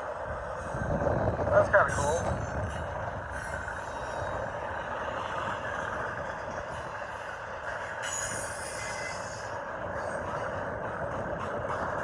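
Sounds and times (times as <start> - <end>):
steel wheels on rails: 0.0 - 12.0.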